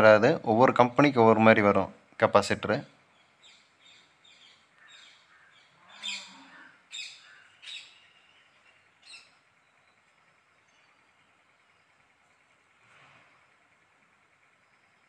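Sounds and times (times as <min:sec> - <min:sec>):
faint bird chirps: 0:02.9 - 0:15.0.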